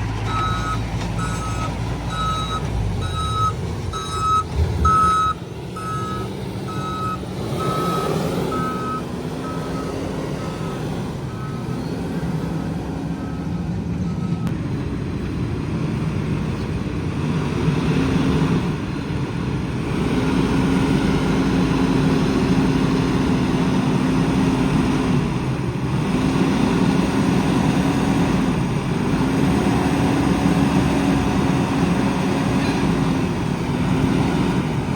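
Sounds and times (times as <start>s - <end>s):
diesel engine revving: 0.0s - 34.9s
reversing alarm beeping: 0.2s - 12.0s.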